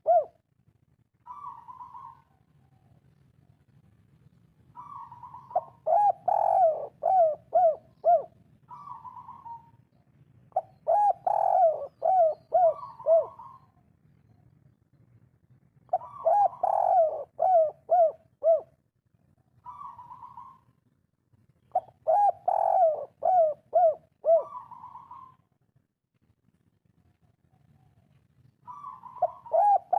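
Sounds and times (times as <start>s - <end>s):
dove cooing: 0.0s - 0.4s, 1.2s - 3.0s, 4.7s - 9.8s, 10.5s - 13.8s, 15.9s - 18.8s, 19.6s - 20.8s, 21.7s - 25.5s, 28.6s - 29.9s.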